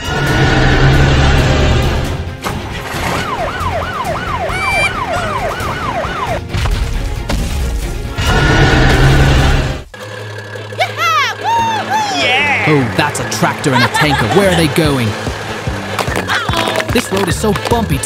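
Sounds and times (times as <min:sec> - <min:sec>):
background music: 0:00.0 - 0:09.9, 0:10.8 - 0:18.0
cartoon siren wail: 0:03.1 - 0:06.4.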